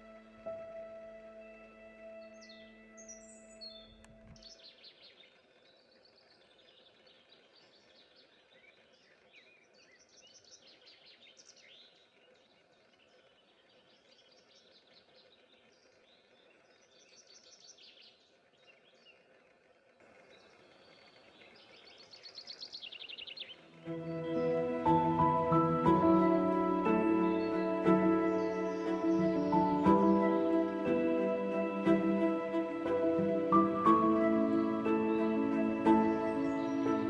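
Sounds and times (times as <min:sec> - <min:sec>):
songbirds singing: 0:00.0 - 0:37.0
background hiss: 0:20.0 - 0:37.0.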